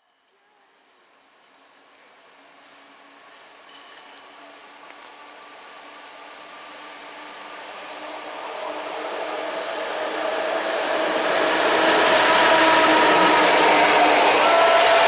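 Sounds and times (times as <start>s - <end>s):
train wheels rushing on rails: 3.5s - 15.0s.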